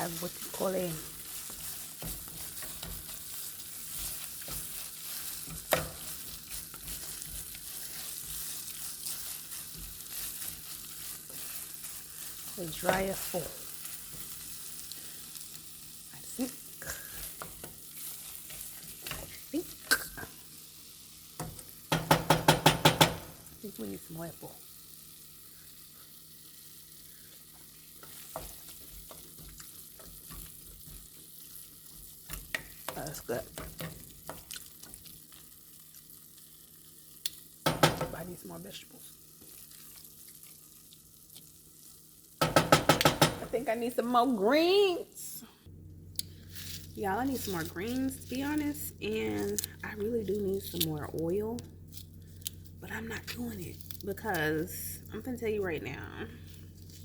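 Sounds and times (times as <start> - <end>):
greens sizzling in oil: 0.0 - 57.0
spoon stirring against pot: 0.2 - 14.6, 27.6 - 35.4.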